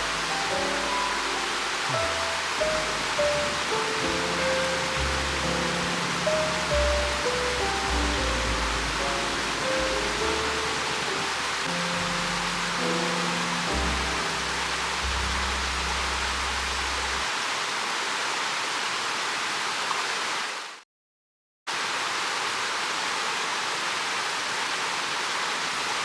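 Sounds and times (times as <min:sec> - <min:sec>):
low held music notes: 0:00.0 - 0:17.3
steady rushing noise: 0:00.0 - 0:17.3.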